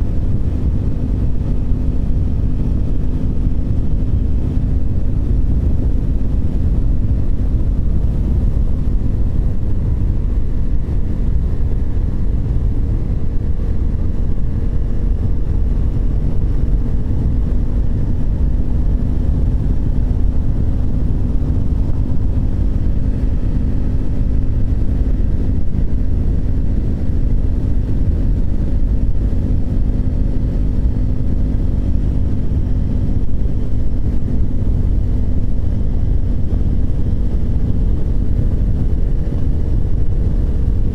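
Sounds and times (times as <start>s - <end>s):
motorcycle engine cruising: 0.0s - 40.9s
wind rumble on microphone: 0.0s - 40.9s.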